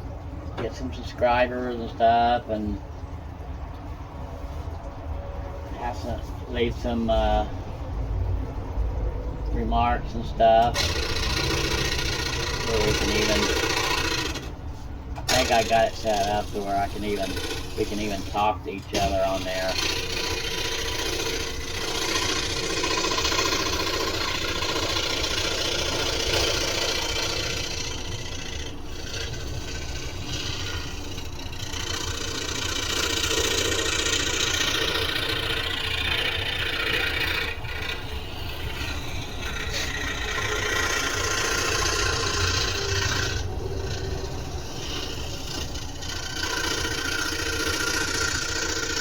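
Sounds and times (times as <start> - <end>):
scroll saw cutting wood: 10.4 - 14.6, 15.2 - 49.0.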